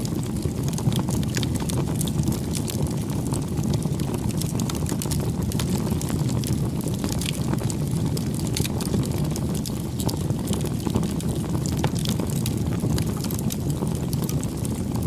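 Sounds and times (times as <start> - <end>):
campfire flames rushing: 0.0 - 15.0
fire crackles and pops: 0.0 - 15.0.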